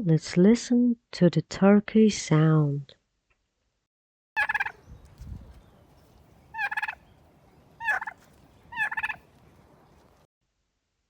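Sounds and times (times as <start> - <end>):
turkey gobbling: 4.4 - 4.8, 6.5 - 7.1, 7.8 - 9.2.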